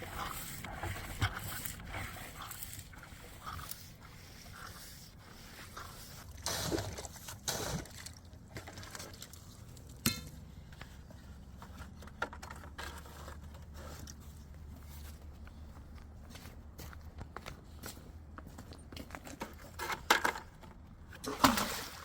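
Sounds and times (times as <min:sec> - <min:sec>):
water sloshing and trickling: 0:00.0 - 0:14.4, 0:19.1 - 0:22.0.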